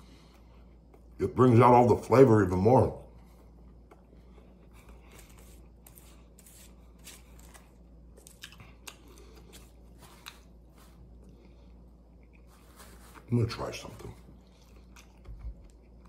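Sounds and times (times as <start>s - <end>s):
man chewing with mouth clicks: 8.1s - 12.5s, 14.4s - 16.0s.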